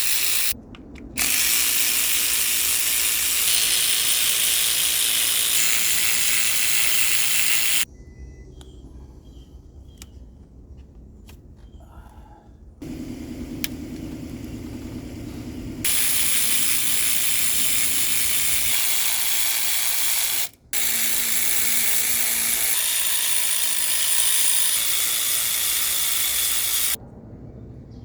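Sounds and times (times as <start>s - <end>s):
small motorised tool buzzing: 0.0s - 0.6s, 1.2s - 7.8s, 12.8s - 27.0s.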